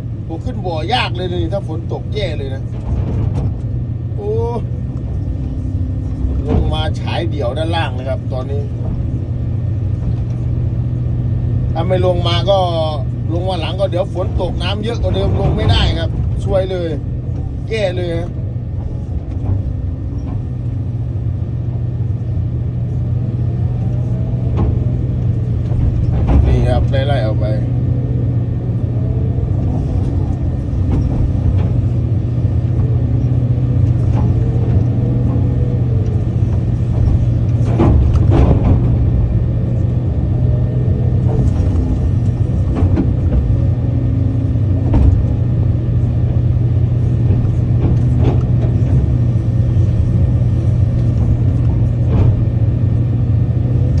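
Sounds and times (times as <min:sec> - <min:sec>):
diesel engine running: 0:00.0 - 0:54.0
short knocks: 0:23.8 - 0:54.0.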